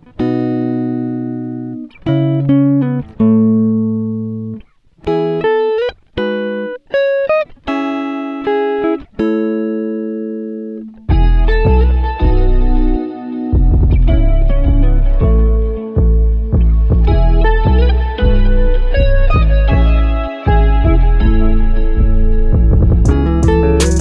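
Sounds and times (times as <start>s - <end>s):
plucked guitar notes and chords: 0.0s - 24.0s.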